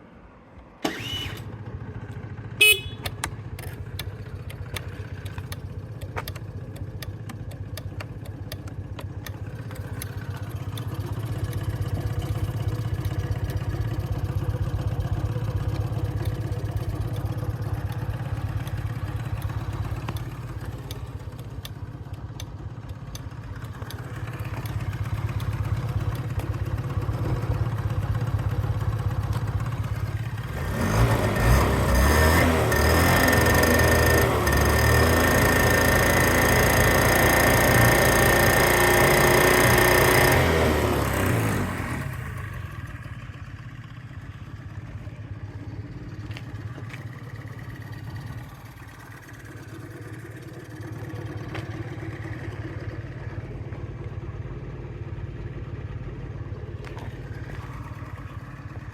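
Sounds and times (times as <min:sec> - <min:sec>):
scooter engine idling: 0:00.0 - 0:58.9
short horn beep: 0:02.6 - 0:03.2.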